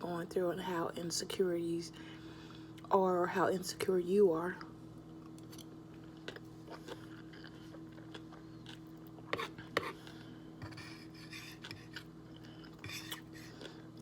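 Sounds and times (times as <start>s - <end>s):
steady low hum: 0.0s - 14.0s
chewing and mouth clicks: 5.1s - 10.2s.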